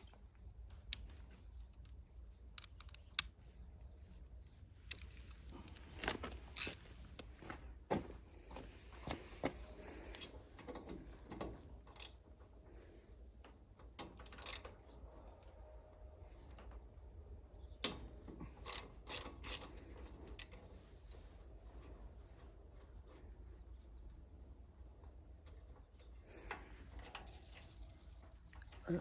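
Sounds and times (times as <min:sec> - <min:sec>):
metal parts clicking and knocking: 0:14.0 - 0:14.8, 0:17.8 - 0:20.6.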